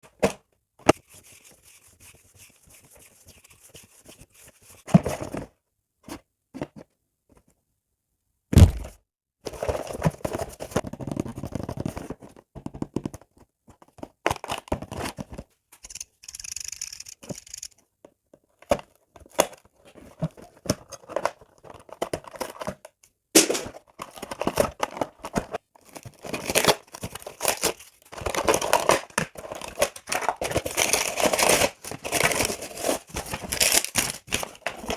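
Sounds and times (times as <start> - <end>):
sharp thunk: 8.5 - 9.0, 23.4 - 23.7
packaging tearing and crinkling: 26.1 - 34.9.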